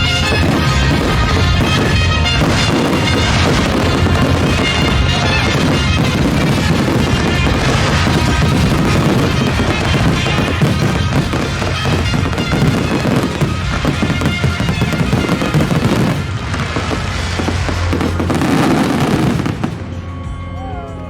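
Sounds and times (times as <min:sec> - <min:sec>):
fireworks bangs and crackles: 0:00.0 - 0:20.2.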